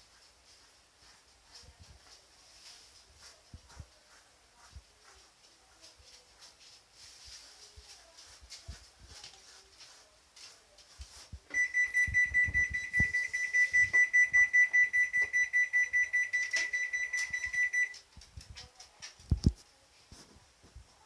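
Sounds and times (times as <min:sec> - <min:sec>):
washing machine alarm beeps: 0:11.5 - 0:18.0.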